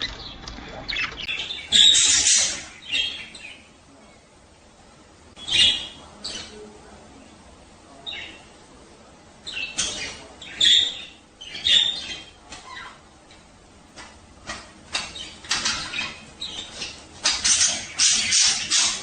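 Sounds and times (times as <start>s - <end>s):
budgerigars squawking: 0.0s - 3.5s, 15.0s - 19.0s.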